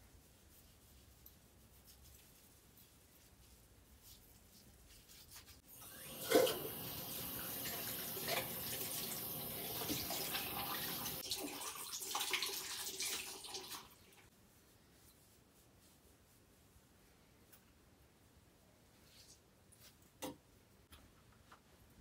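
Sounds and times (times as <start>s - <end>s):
water running from a tap: 5.7s - 14.3s.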